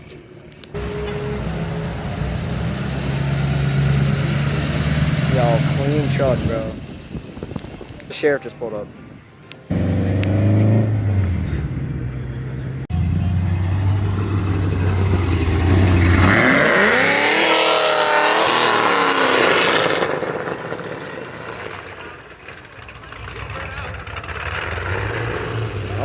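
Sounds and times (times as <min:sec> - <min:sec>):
exhaust hiss and tyre noise: 0:00.1 - 0:08.2
car engine accelerating: 0:00.7 - 0:07.8, 0:09.7 - 0:26.0.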